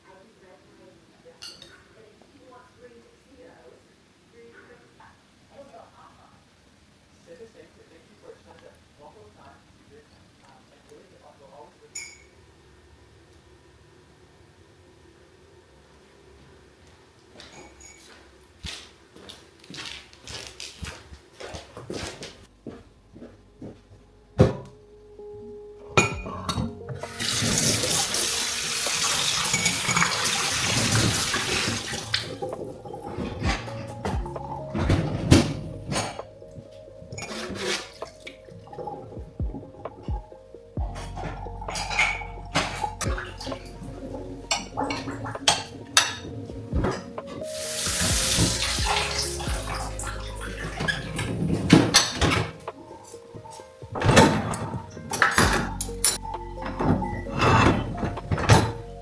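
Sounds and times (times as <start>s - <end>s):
dishes and utensils clinking: 1.4s - 1.8s, 11.9s - 12.4s, 17.4s - 18.2s, 25.9s - 40.2s, 40.9s - 59.0s
background music: 22.5s - 59.0s
tap running into sink: 47.6s - 51.3s.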